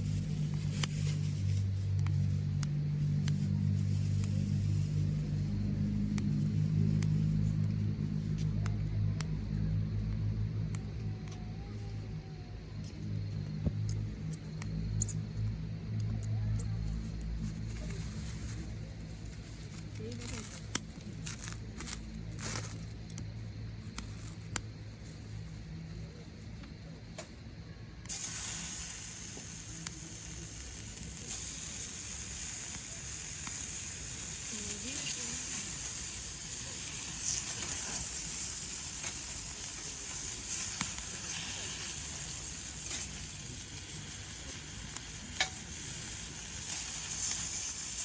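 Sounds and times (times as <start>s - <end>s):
food sizzling in a hot pan: 0.0s - 7.1s, 28.1s - 48.0s.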